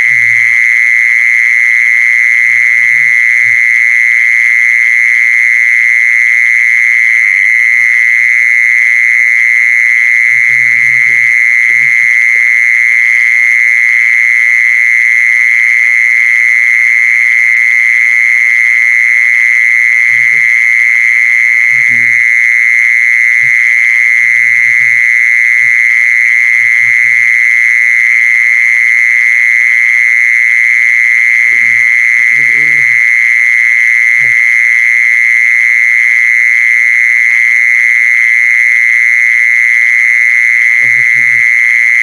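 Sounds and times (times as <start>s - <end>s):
cricket trilling: 0.0s - 42.0s
faint voices: 31.5s - 31.8s, 32.4s - 33.0s.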